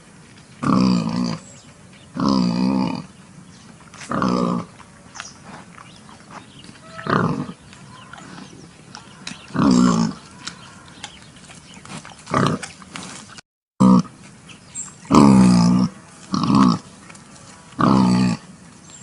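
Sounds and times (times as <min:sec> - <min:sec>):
pig grunting: 0:00.6 - 0:01.5, 0:02.1 - 0:03.2, 0:04.0 - 0:04.8, 0:05.4 - 0:14.2, 0:15.0 - 0:16.9, 0:17.5 - 0:18.5.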